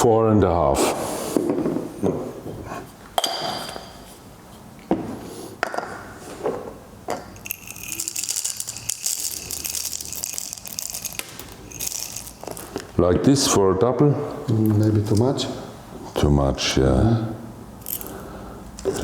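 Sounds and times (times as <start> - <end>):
coffee grinder hissing rattle: 7.4 - 13.0.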